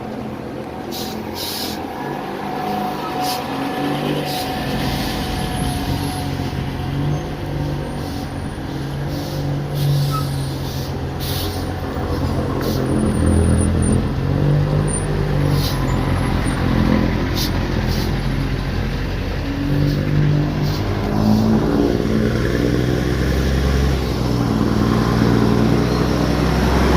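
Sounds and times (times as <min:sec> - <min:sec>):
diesel truck engine running: 0:00.0 - 0:26.9
short air hisses: 0:00.9 - 0:01.9, 0:09.1 - 0:12.9, 0:20.6 - 0:21.6.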